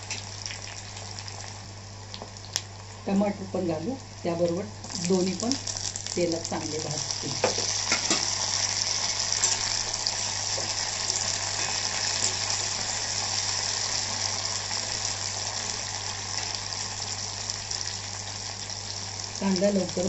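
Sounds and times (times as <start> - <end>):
vegetables sizzling in hot oil: 0.0 - 20.0.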